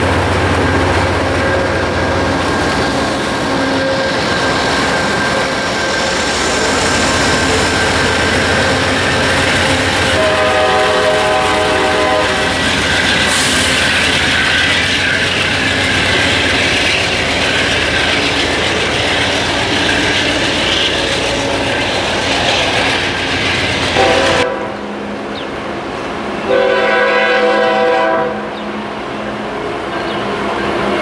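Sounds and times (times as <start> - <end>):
train wheels on rail: 0.0 - 31.0
locomotive air horn blast: 9.8 - 12.6, 24.0 - 25.0, 26.5 - 28.6.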